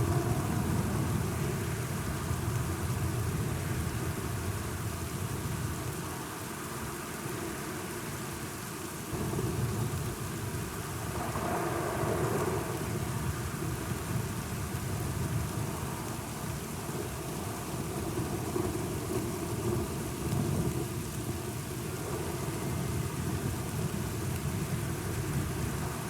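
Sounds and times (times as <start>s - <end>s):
steady rain: 0.0s - 26.0s
low rolling thunder: 9.1s - 26.0s.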